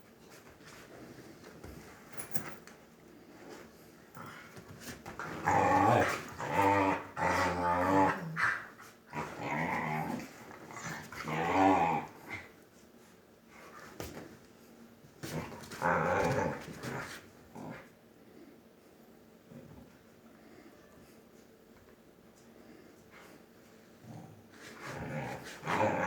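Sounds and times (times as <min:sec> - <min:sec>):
dog growling: 0:05.2 - 0:12.5, 0:15.4 - 0:17.9, 0:24.0 - 0:26.0.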